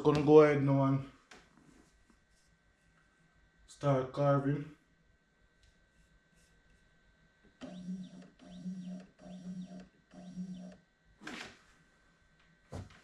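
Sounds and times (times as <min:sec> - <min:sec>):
stepper motor whine: 0:07.5 - 0:10.9.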